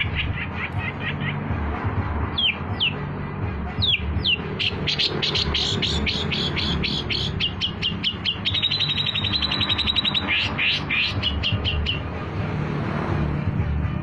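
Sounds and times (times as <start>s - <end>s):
background music: 0.0s - 14.0s
bird singing sharp trill: 2.4s - 3.0s, 3.8s - 12.1s.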